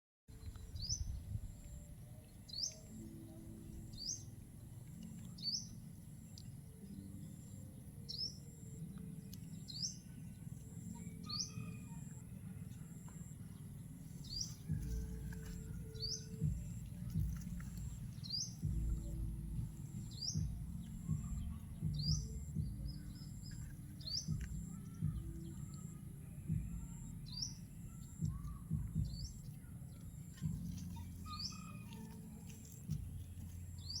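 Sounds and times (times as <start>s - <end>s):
bird chirping: 0.4s - 34.0s
low rumbling noise: 13.9s - 34.0s.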